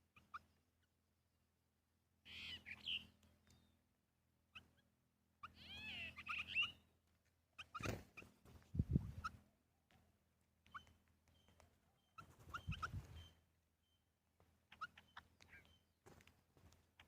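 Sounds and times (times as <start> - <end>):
small birds chirping: 0.0 - 1.2, 2.0 - 17.0
gliding bird calls: 5.4 - 6.8, 10.6 - 14.0.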